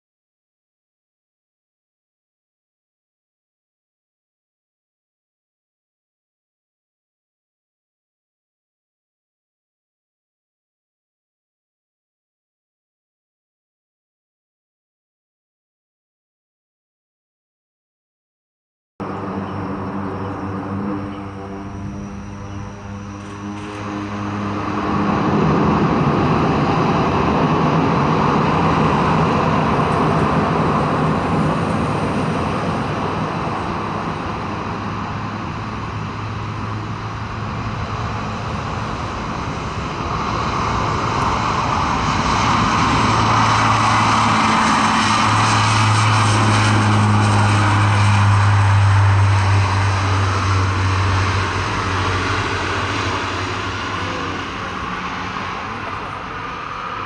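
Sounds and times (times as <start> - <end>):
turboprop engines running: 19.0 - 57.0.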